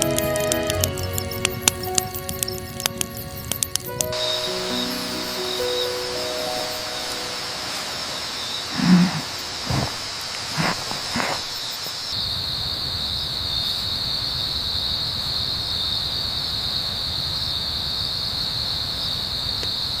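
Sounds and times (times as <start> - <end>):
crickets chirping: 0.0 - 20.0
wind rumble: 0.9 - 12.2.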